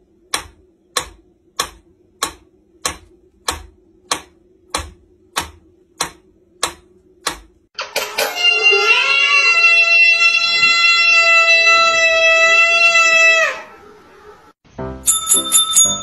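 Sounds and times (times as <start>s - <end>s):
metronome ticking: 0.2s - 7.5s.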